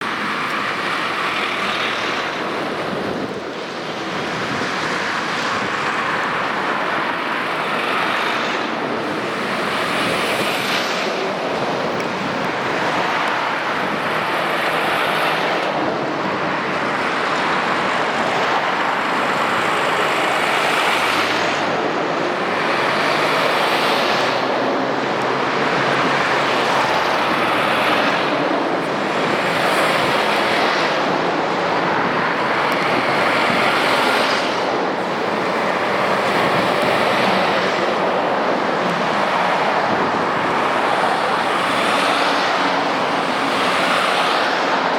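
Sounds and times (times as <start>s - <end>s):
heavy lorries passing: 0.0s - 44.9s.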